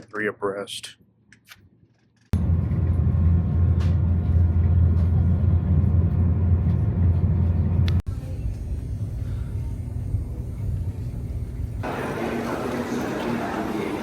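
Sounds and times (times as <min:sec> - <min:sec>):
vehicle interior rumble: 0:02.4 - 0:08.1.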